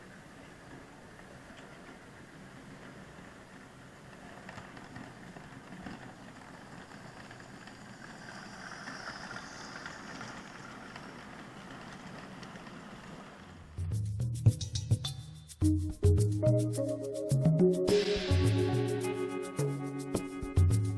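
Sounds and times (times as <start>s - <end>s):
wheels clicking over rails: 0.0s - 13.8s
model train humming and rumbling: 0.0s - 13.9s.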